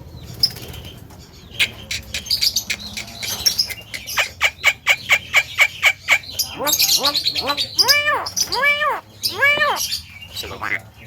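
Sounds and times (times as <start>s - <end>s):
myna chattering: 6.0s - 10.8s.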